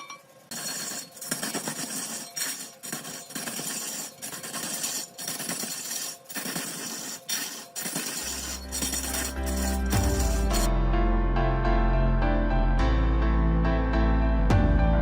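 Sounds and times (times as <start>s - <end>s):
lathe tool scraping wood: 0.4s - 10.7s.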